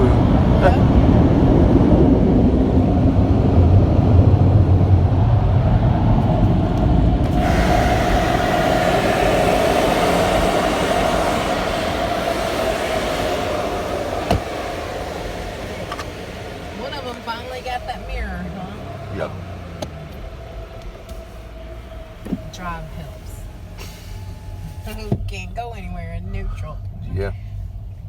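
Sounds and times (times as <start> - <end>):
car wash machinery rumble: 0.0 - 28.0
rushing hiss with hum: 6.9 - 25.0.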